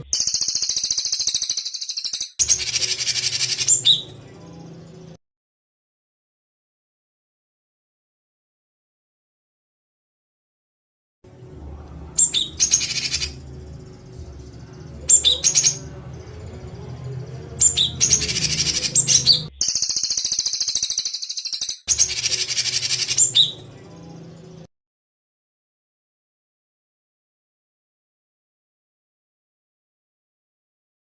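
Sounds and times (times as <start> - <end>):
songbird harsh chattering call: 0.0 - 4.0, 17.6 - 23.6
low steady hum: 11.3 - 19.5.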